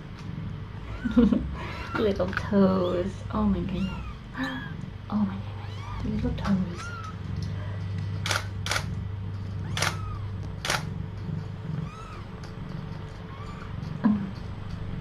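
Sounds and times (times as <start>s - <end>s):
steady low hum: 0.0s - 15.0s
camera shutter clicking: 8.2s - 8.9s, 9.8s - 10.0s, 10.6s - 10.9s.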